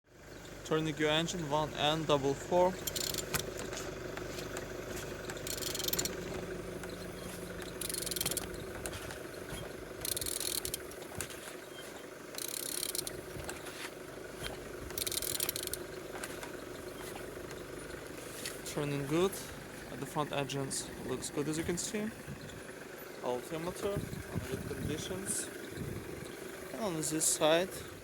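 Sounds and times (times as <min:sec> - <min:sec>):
steady hum: 0:00.7 - 0:28.0
ratchet wrench strokes: 0:02.8 - 0:03.5, 0:05.3 - 0:06.2, 0:07.2 - 0:08.9, 0:10.0 - 0:11.2, 0:12.4 - 0:13.6, 0:14.9 - 0:15.8.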